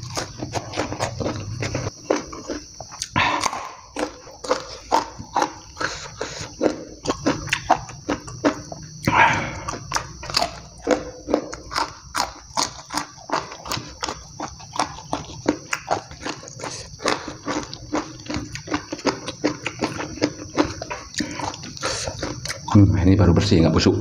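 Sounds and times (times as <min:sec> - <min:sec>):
wet crunchy chewing: 0:00.0 - 0:23.0
breathy noise: 0:09.0 - 0:09.9.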